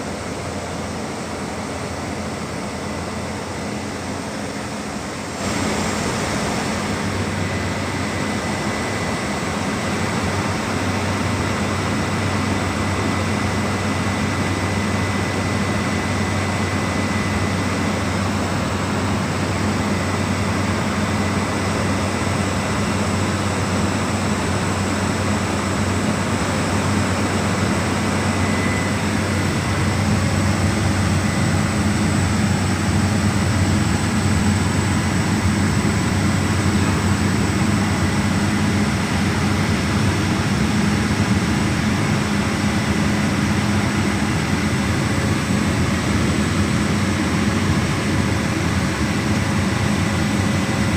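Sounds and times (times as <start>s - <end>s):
propeller aircraft engines droning: 0.0s - 50.9s
thin high whine: 24.7s - 50.9s.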